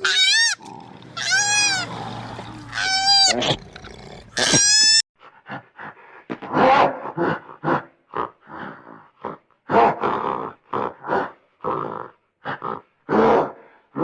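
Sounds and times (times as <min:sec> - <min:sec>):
animal grunting: 0:00.0 - 0:04.8.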